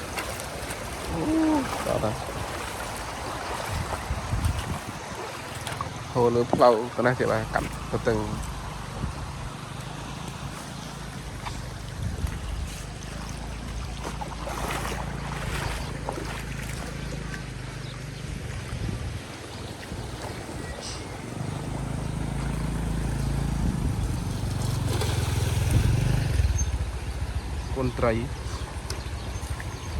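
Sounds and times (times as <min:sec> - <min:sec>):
wind on microphone: 0:00.0 - 0:06.0, 0:08.4 - 0:09.6, 0:11.3 - 0:13.2, 0:18.2 - 0:21.2, 0:23.2 - 0:24.7, 0:25.4 - 0:27.7
small engine running: 0:21.3 - 0:27.6.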